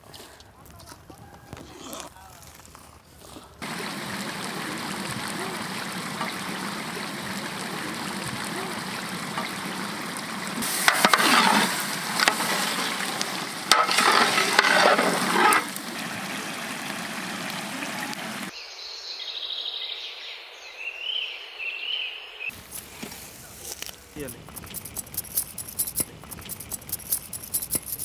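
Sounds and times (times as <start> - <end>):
pot hissing over heat: 3.6 - 18.5, 22.5 - 28.0.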